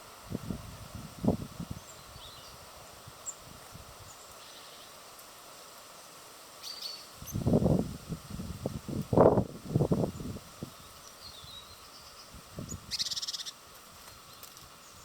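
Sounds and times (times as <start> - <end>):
small birds chirping: 1.7 - 7.5, 10.0 - 15.0.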